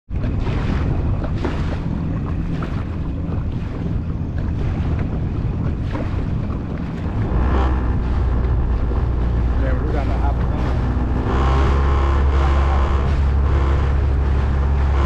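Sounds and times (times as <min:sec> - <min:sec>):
jet ski engine running: 0:00.1 - 0:15.0
water rushing: 0:00.1 - 0:15.0
wind buffeting microphone: 0:00.1 - 0:15.0.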